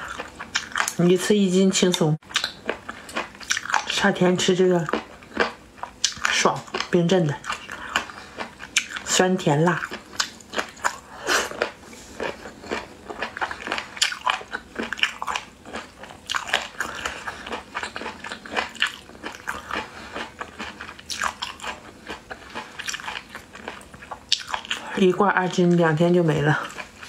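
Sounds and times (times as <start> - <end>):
chewing and crunching: 0.0 - 1.1, 2.2 - 27.0.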